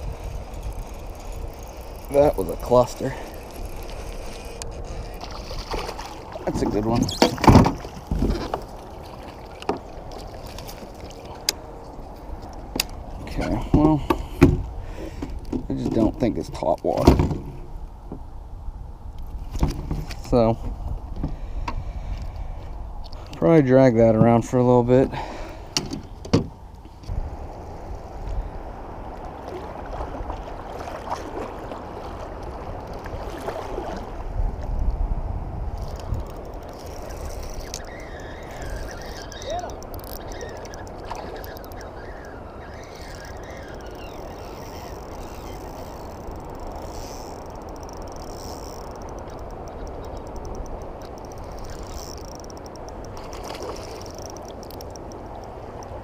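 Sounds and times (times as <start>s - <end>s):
wind and water rushing: 0.0s - 56.0s
sharp clicks: 43.0s - 56.0s.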